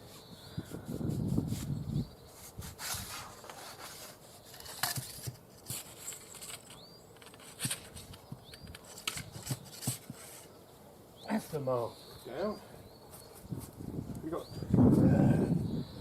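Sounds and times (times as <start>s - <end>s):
clicks and knocks of mast handling: 4.5s - 10.5s.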